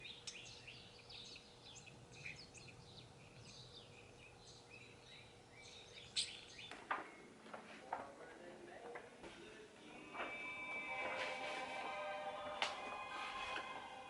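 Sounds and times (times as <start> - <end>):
birds chirping: 0.0 - 7.4.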